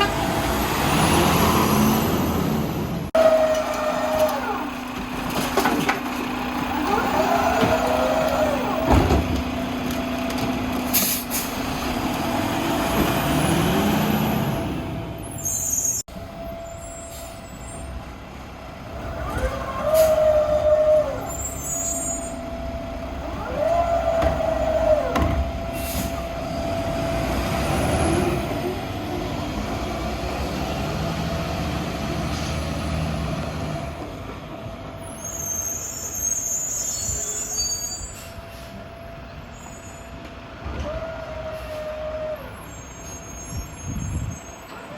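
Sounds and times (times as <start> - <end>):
diesel engine running: 0.0 - 15.2
electric arm motors whining: 6.6 - 9.0
air brake hisses: 10.9 - 11.6.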